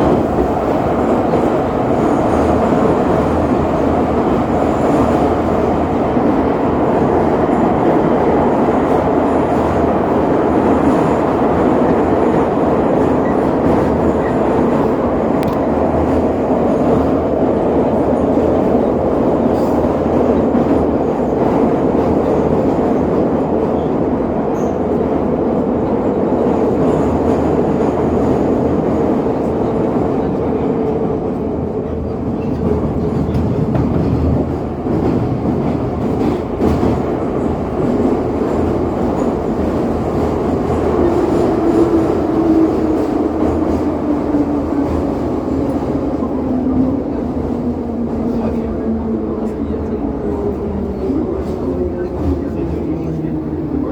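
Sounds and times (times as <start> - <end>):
train wheels rumbling: 0.0 - 53.9.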